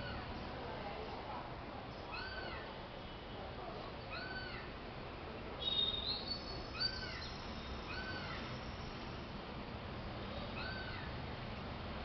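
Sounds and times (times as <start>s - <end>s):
bird whistling calls: 5.6s - 8.4s.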